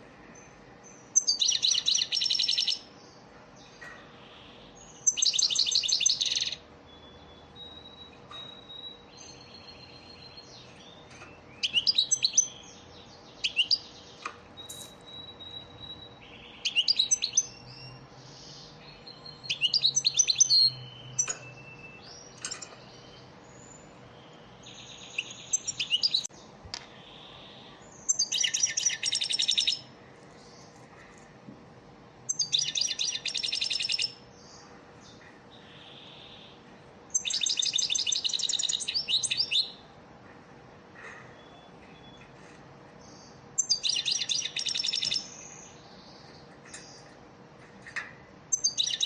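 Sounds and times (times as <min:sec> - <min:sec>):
goldfinch twittering song: 0:01.2 - 0:02.9, 0:04.8 - 0:13.9, 0:24.7 - 0:26.3, 0:27.2 - 0:29.9, 0:32.3 - 0:34.6, 0:37.1 - 0:39.8, 0:43.1 - 0:45.8, 0:48.5 - 0:49.0.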